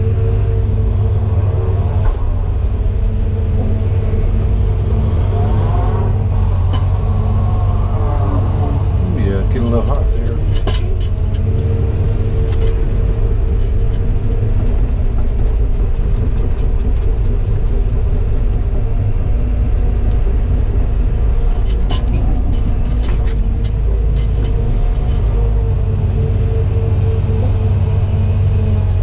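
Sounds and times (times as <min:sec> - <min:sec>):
diesel engine running under load: 0:00.0 - 0:29.0
sharp clicks and knocks: 0:09.5 - 0:11.7, 0:19.7 - 0:25.8.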